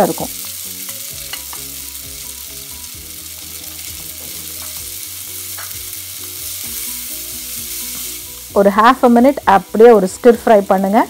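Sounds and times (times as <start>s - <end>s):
noodles sizzling in hot oil: 0.0s - 11.0s
spatula tapping pan: 5.5s - 5.9s.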